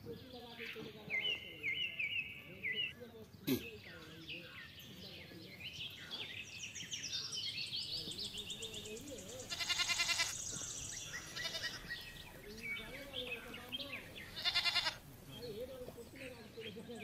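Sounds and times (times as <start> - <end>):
birds chirping: 0.0 - 17.0
livestock bleating: 9.4 - 10.4, 11.1 - 12.0, 14.0 - 15.1.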